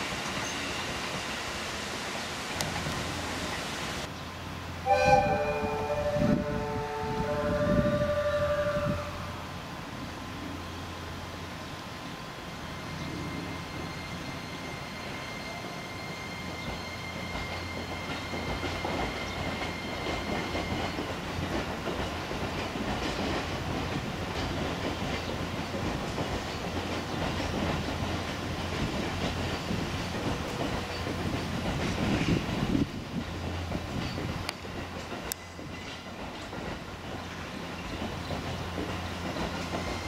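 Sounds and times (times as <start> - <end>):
train running rumble: 0.0 - 40.0
faint high tone: 4.9 - 9.2
train wheels clicking over joints: 15.0 - 40.0.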